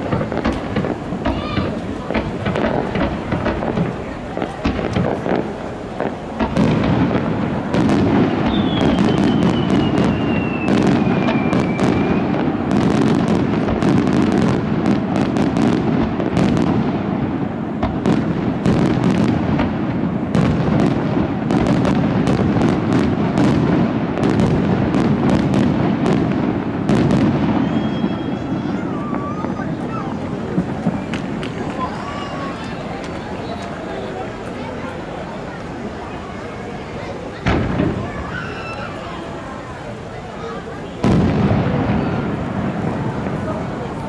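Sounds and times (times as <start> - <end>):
fireworks bursting and crackling: 0.0 - 44.0
falling firework whistle: 7.6 - 15.3, 26.9 - 34.1, 37.8 - 39.3.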